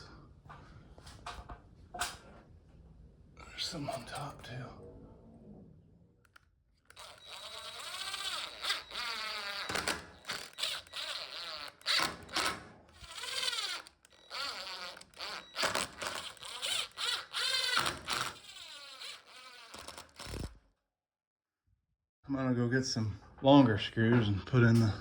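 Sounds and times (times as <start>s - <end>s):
cordless drill driving screws: 6.3s - 20.6s.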